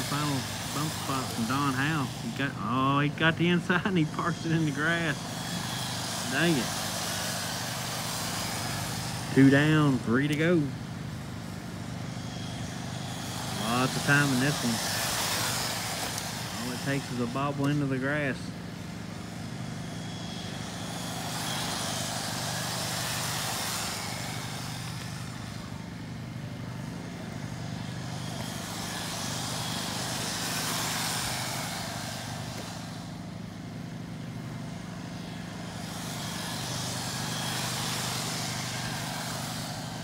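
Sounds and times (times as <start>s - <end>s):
rc car motor whine: 0.0s - 40.0s
steady low hum: 0.0s - 40.0s.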